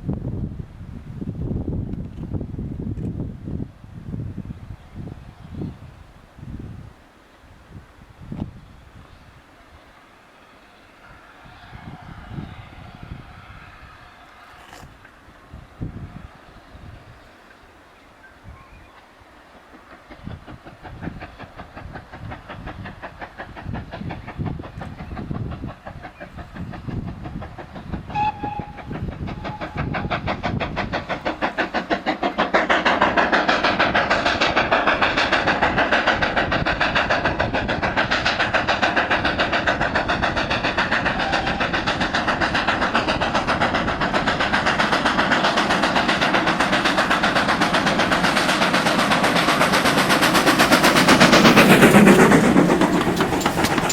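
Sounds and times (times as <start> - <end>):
steam train passing: 0.0 - 53.9
train whistle: 11.0 - 14.8, 28.1 - 30.1
rhythmic clatter of exhaust and wheels: 19.4 - 53.9.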